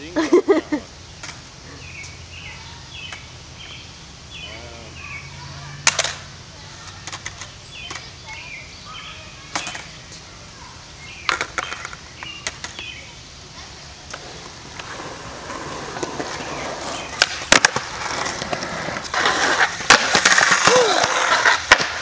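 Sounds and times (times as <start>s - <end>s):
bird singing falling chirps: 1.1s - 5.9s, 6.8s - 13.6s.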